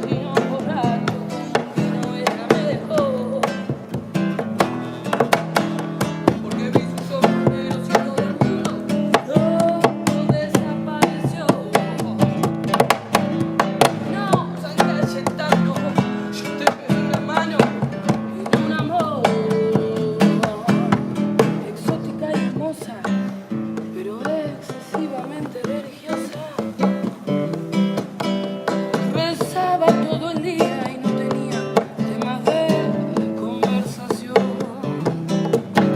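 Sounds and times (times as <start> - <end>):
acoustic guitar strumming: 0.0 - 35.9
person singing: 0.0 - 35.9.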